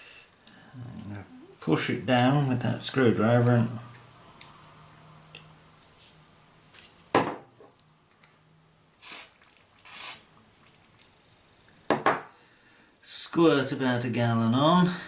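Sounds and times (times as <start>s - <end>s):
short hisses: 9.0s - 10.3s.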